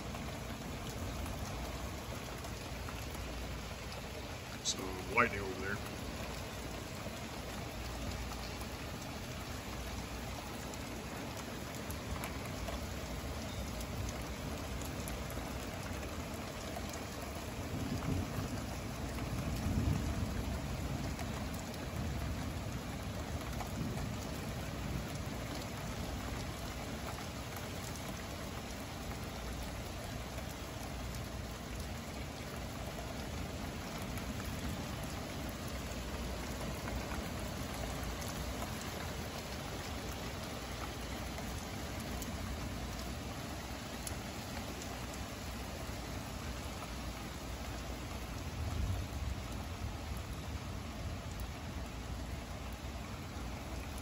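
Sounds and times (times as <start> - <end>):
heavy rain falling: 0.0 - 54.0
low rumble of thunder: 14.0 - 26.7, 48.1 - 52.4.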